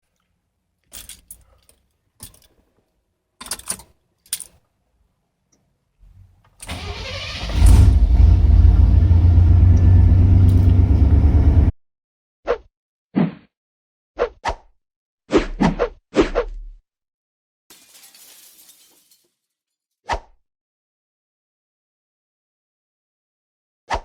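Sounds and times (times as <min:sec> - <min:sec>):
engine cranking and starting: 0:06.6 - 0:11.7
engine running loud: 0:06.7 - 0:11.7.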